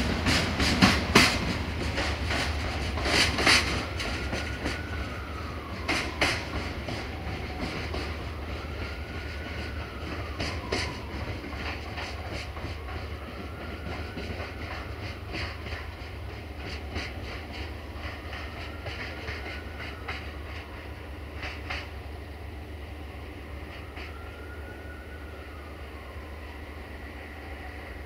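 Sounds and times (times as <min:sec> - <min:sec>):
wheels clicking over rail joints: 0:00.0 - 0:22.0
diesel train engine drone: 0:00.0 - 0:28.0.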